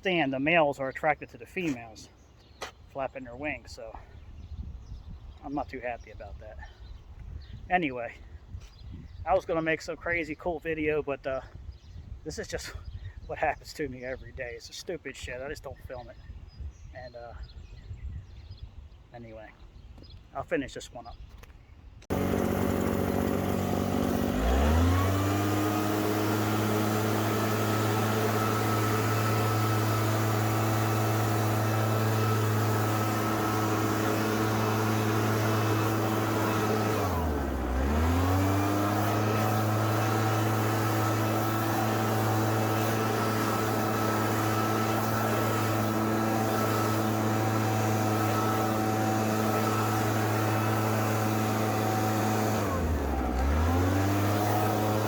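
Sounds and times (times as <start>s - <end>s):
string trimmer engine revving: 22.1s - 55.0s.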